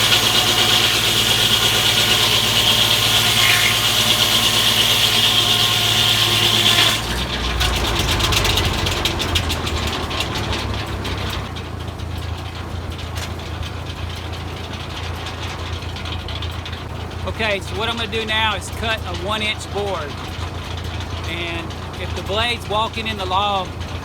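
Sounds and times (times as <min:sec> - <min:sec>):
saw blade spinning freely: 0:00.0 - 0:07.2
circular saw blade cutting log: 0:00.0 - 0:11.5
tractor engine under load: 0:00.0 - 0:24.0.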